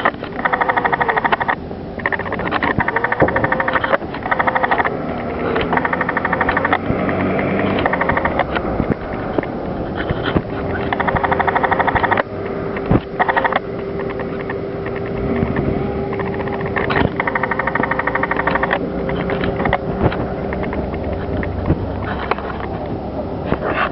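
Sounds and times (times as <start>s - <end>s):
rolling and wind noise: 0.0s - 23.9s
steady hum: 0.0s - 23.9s
bicycle freewheel ticking: 2.0s - 7.3s, 16.1s - 19.2s.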